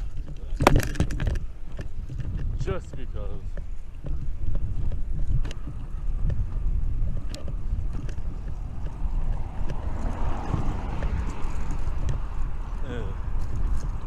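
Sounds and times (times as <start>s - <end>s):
wind buffeting microphone: 0.0s - 14.0s
camera mount rattling clicks: 0.2s - 2.6s.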